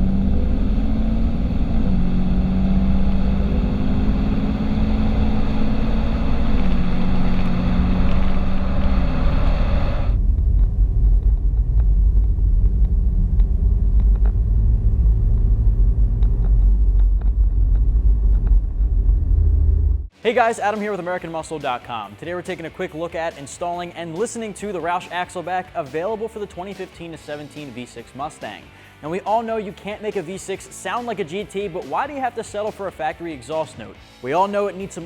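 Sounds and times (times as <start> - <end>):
raspy car exhaust note: 0.0 - 20.1.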